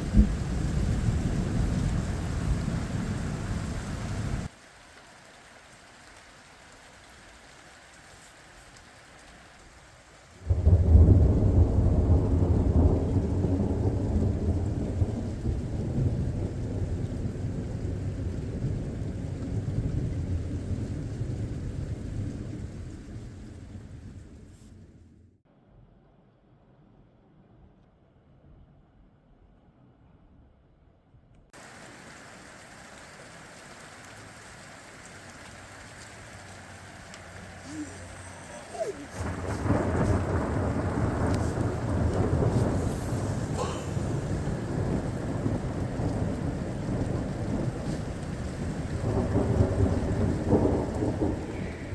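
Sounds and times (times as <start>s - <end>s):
deep thunderclap rumbling: 0.0s - 4.5s, 10.4s - 25.3s, 34.3s - 51.9s
steady rain: 0.0s - 25.0s, 31.6s - 51.9s.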